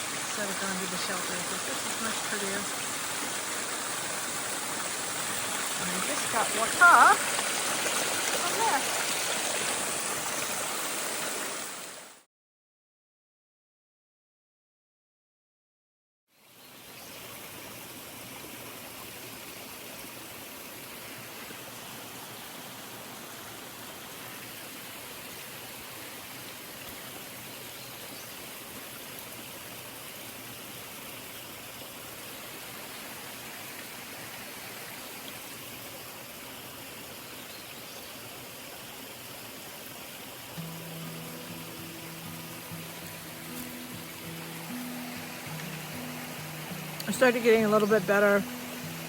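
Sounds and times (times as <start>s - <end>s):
waterfall rushing: 0.0s - 12.2s, 38.4s - 49.0s.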